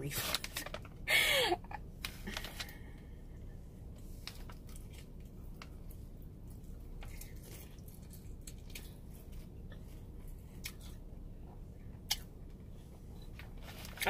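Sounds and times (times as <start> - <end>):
steady low hum: 0.0 - 14.0
wet chewing and mouth sounds: 4.0 - 14.0.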